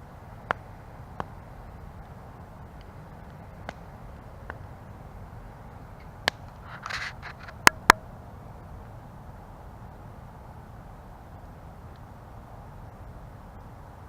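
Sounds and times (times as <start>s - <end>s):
low rush of campfire flames: 0.0s - 14.0s
wood crackling in fire: 0.0s - 14.0s
sharp pops from fire: 0.4s - 4.7s, 5.9s - 8.2s.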